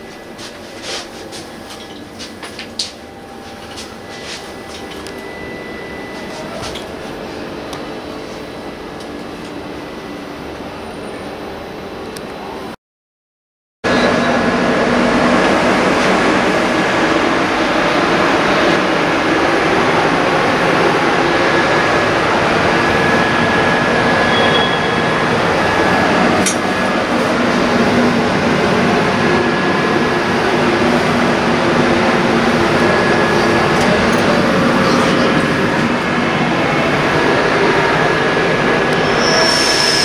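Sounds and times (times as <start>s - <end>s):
thin whine: 0.0s - 12.0s, 32.0s - 40.0s
train wheel and rail noise: 0.0s - 12.8s, 13.9s - 40.0s.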